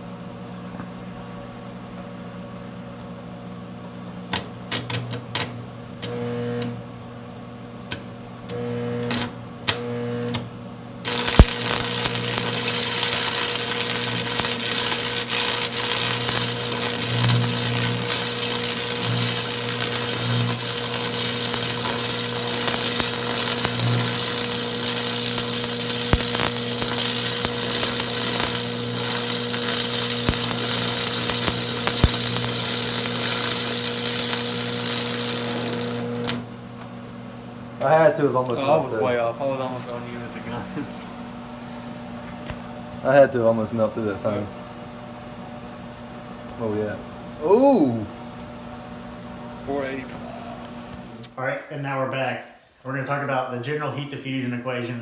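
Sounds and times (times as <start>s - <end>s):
electrical hum: 0.0s - 55.0s
welding arc crackling: 4.3s - 6.8s, 7.9s - 36.5s.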